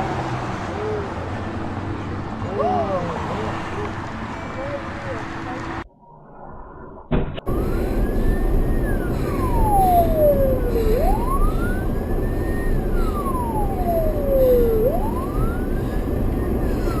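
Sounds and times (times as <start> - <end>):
traffic rumble: 0.0 - 5.9, 7.4 - 17.0
emergency siren wailing: 7.5 - 17.0.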